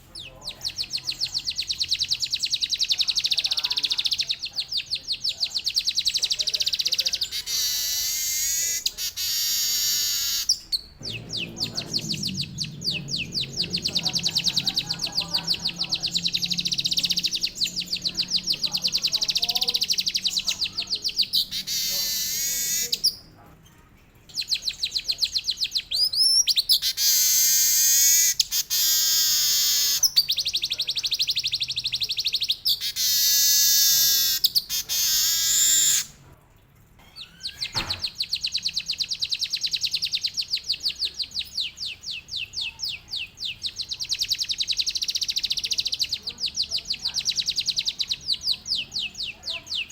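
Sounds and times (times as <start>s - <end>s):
weaver bird trilling: 0.2s - 23.2s, 24.3s - 36.1s.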